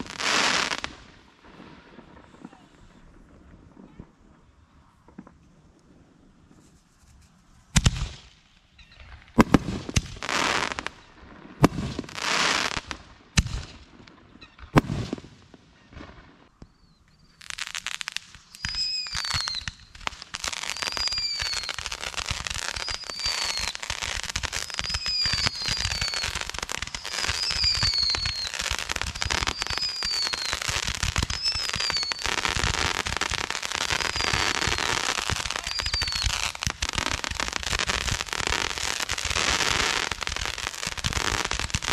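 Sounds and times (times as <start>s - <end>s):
fireworks bangs: 0.0s - 6.6s, 7.6s - 41.9s
short falling whistles: 27.1s - 28.6s.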